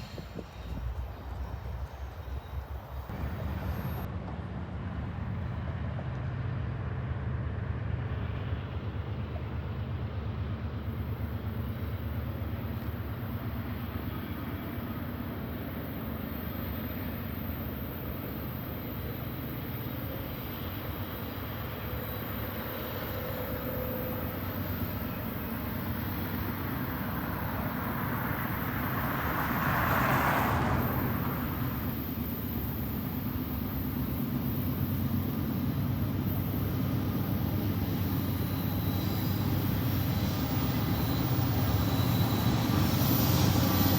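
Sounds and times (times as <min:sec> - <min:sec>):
freight train rumbling past: 0:00.0 - 0:43.9.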